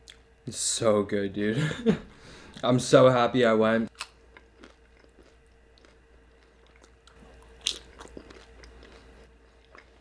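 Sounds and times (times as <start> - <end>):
crisp bite crunch: 3.9 - 10.0
person chewing food: 3.9 - 10.0.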